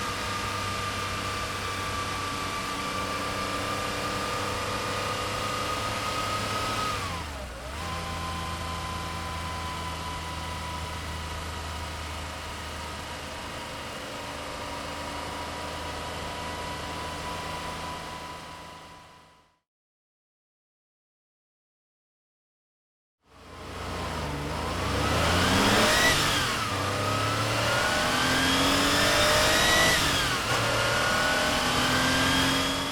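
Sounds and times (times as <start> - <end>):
car engine running: 23.3 - 32.9.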